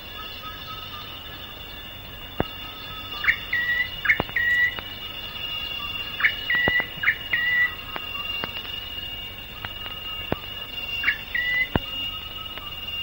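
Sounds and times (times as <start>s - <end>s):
insects droning: 0.0s - 13.0s
bird whistling call: 2.4s - 13.0s.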